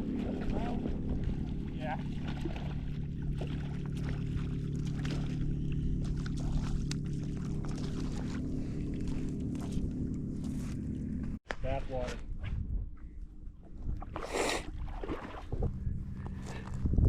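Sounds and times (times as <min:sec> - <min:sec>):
water splashes: 0:00.0 - 0:10.6, 0:14.0 - 0:15.7
boat motor running: 0:00.0 - 0:11.4, 0:13.2 - 0:17.0.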